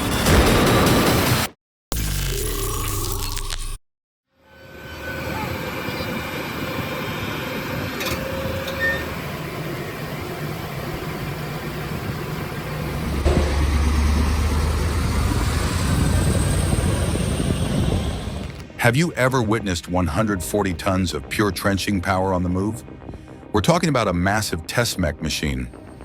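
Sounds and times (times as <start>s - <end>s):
diesel engine rumbling: 9.4s - 18.8s.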